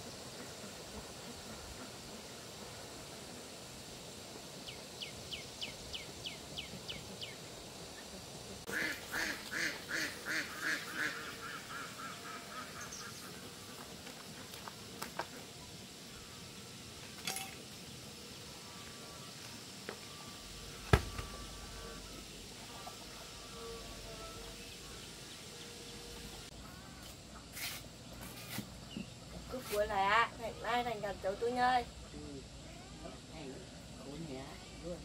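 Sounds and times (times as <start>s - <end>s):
birds chirping: 4.6s - 14.5s, 17.8s - 31.9s.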